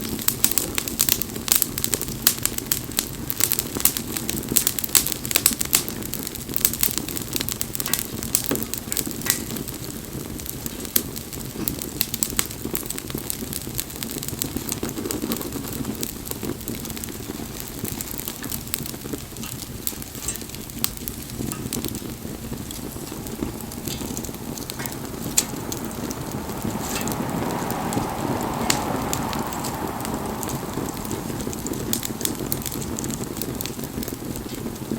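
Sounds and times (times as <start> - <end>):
bonfire crackling and popping: 0.0 - 34.9
low steady rumble: 17.2 - 34.9.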